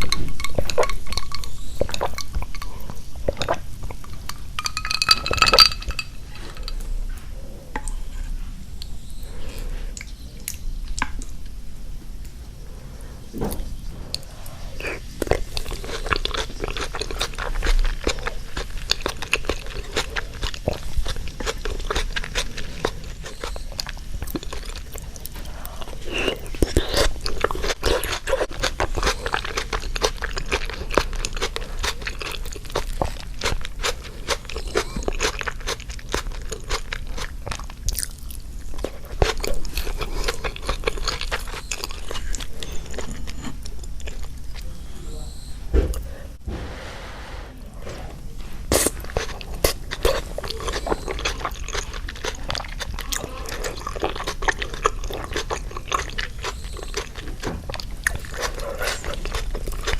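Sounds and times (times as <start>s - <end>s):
chewing and crunching food: 0.0s - 11.6s, 13.2s - 45.2s, 48.4s - 59.9s.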